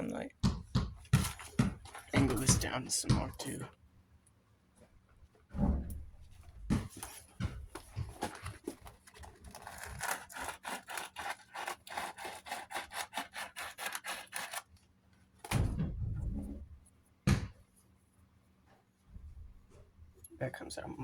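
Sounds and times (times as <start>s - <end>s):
sandpaper scrubbing: 9.5s - 14.7s.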